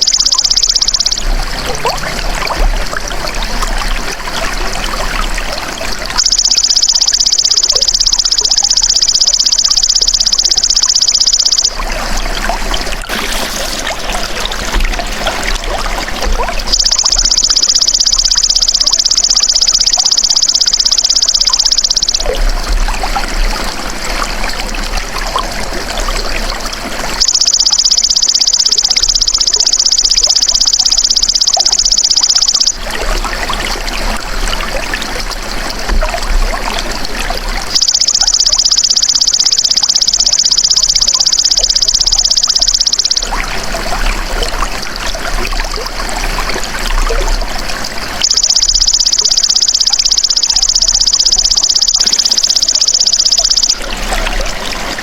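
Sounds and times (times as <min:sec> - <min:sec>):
trickling water: 0:00.0 - 0:55.0.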